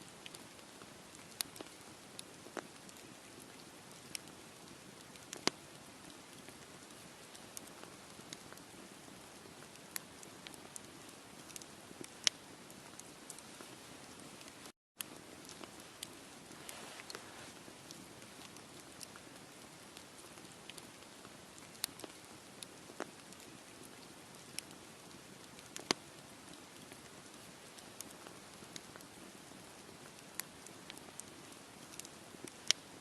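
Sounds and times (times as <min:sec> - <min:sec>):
campfire crackling: 0:00.1 - 0:33.0
burning wood popping: 0:15.0 - 0:20.1.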